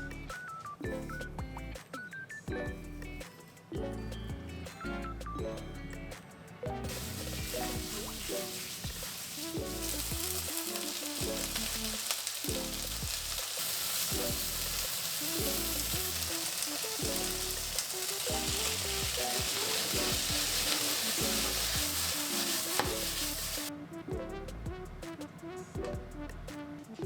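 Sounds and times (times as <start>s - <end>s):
food sizzling in oil: 6.9s - 23.7s.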